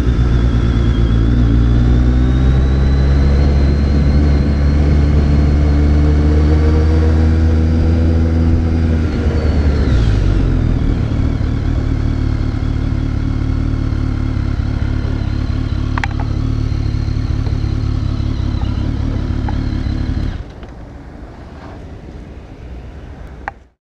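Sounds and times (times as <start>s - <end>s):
motorcycle engine idling: 10.3s - 20.8s.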